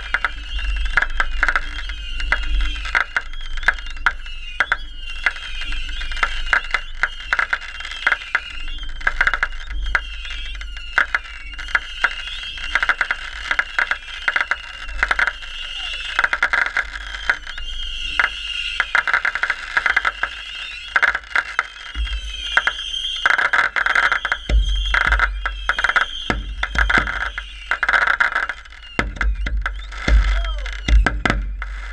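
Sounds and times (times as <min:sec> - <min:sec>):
frogs trilling: 0:00.0 - 0:31.6
wind rumbling on microphone: 0:21.8 - 0:23.0, 0:24.1 - 0:27.8.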